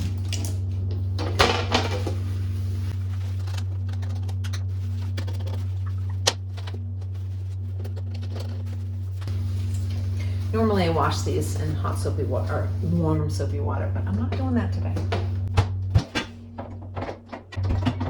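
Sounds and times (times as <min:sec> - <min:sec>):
steady low hum: 0:00.0 - 0:18.0
knocks and clatters of handling: 0:14.4 - 0:18.0.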